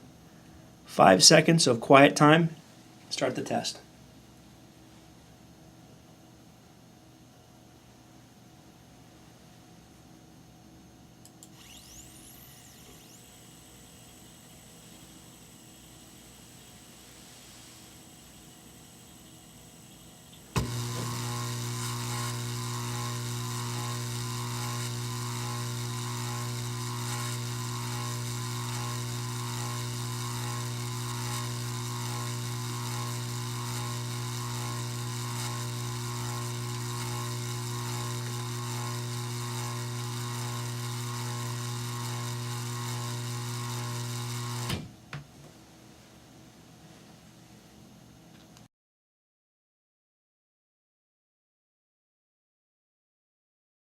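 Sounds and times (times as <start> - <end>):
motor humming and buzzing: 11.3 - 44.9
motor switch click: 20.3 - 44.9.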